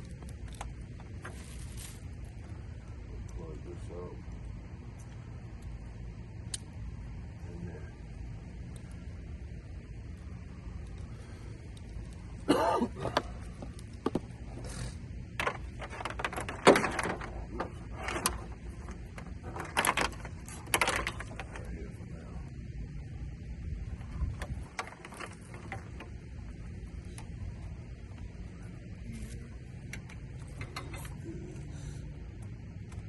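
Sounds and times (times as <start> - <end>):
hands handling parts and wiring: 0.0 - 3.4, 13.0 - 21.9, 23.8 - 33.0
steady low rumble: 0.0 - 33.0.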